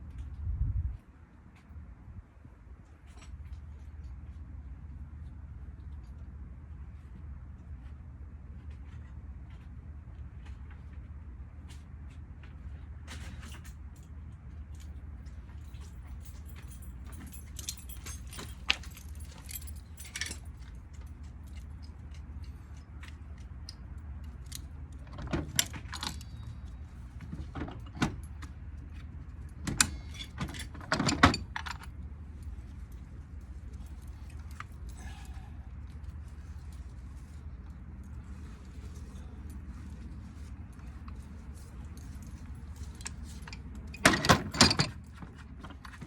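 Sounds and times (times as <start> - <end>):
metal tools clinking and knocking: 15.7 - 20.9, 29.7 - 31.9, 41.0 - 46.0
steady low hum: 26.1 - 44.1.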